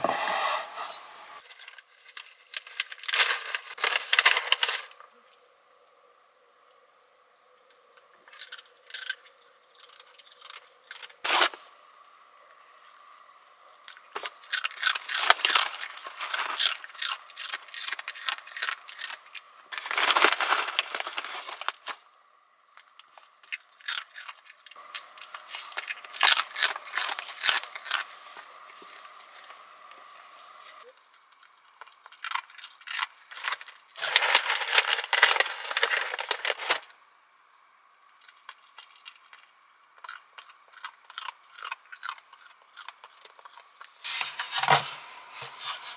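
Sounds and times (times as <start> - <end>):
packaging crinkling and tearing: 1.4 - 5.0, 8.3 - 11.6, 13.8 - 22.1, 22.8 - 30.0, 31.4 - 37.0.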